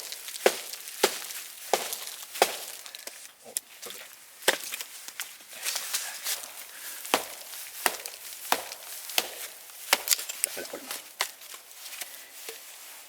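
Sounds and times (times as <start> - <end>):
axe chopping wood: 0.0 - 3.2, 4.4 - 4.9, 6.3 - 11.4
small cracks and clicks: 0.0 - 6.0, 7.8 - 12.1.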